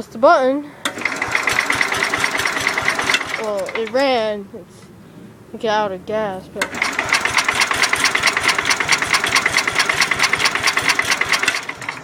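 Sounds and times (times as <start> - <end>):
starter cranking engine: 0.8 - 4.0, 6.6 - 12.0.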